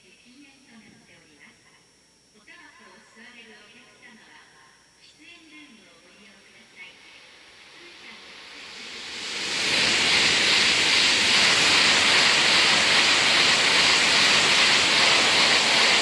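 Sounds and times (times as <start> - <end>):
high-speed train passing: 7.2 - 16.0.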